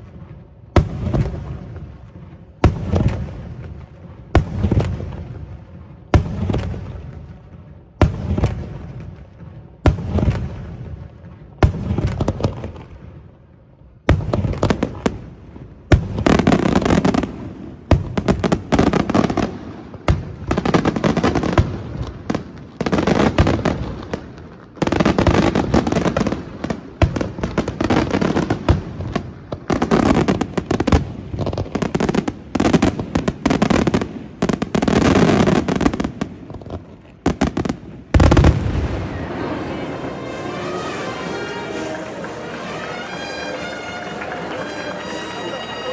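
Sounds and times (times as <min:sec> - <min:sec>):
fireworks bangs with rumbling echo: 0:00.0 - 0:45.9
fireworks barrage crackling: 0:14.1 - 0:45.9.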